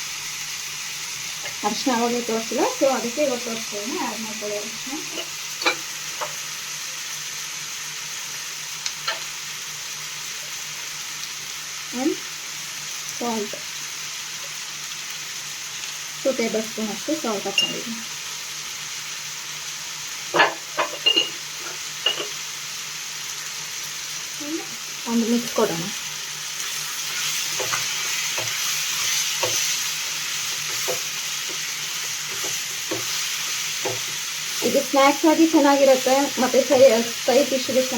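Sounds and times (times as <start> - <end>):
food sizzling in hot oil: 0.0 - 37.9
spoon tapping a pan: 5.1 - 6.4, 9.0 - 9.3, 17.5 - 17.9, 20.4 - 22.4, 29.4 - 29.7, 32.3 - 33.2, 33.8 - 34.2.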